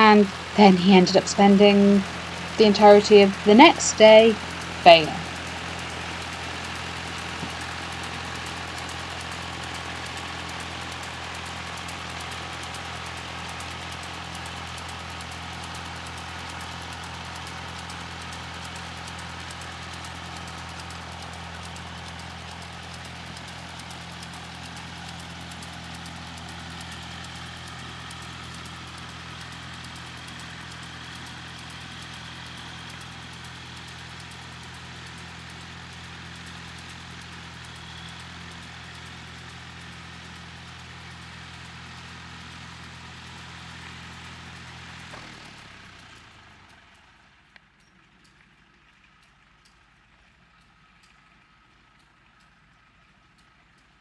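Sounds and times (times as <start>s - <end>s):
tractor engine running: 0.0s - 47.8s.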